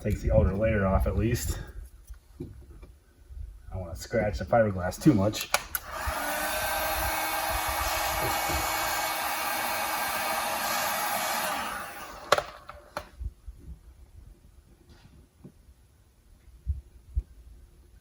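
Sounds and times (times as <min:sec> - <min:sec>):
sharp clicks: 0:05.4 - 0:06.1
hot-air blower whining: 0:05.7 - 0:13.1.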